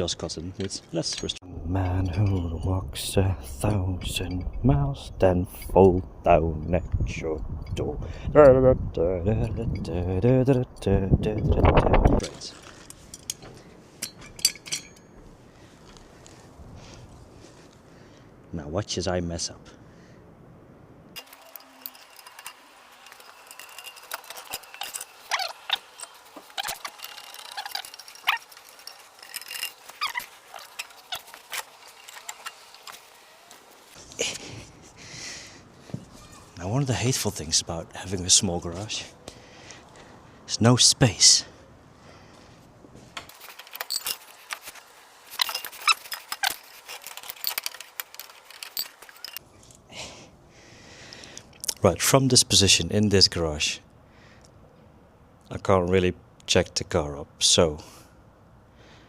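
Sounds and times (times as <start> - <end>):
metal tools clinking and rattling: 0.0 - 2.8, 3.9 - 4.7, 9.7 - 16.0, 21.2 - 34.4, 43.3 - 49.8
short high squeaks: 21.2 - 34.0, 43.4 - 49.4.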